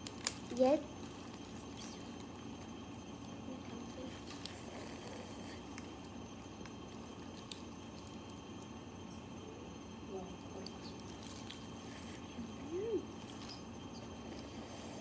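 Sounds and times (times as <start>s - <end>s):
crab shell cracking by hand: 0.0s - 0.5s.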